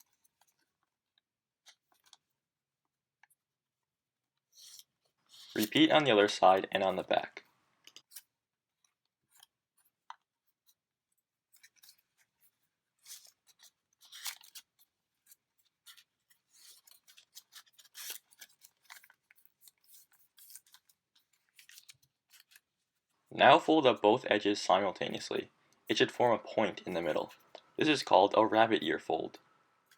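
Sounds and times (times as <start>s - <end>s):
paper crinkling and rustling: 4.5s - 7.2s, 7.9s - 23.3s, 26.3s - 28.2s.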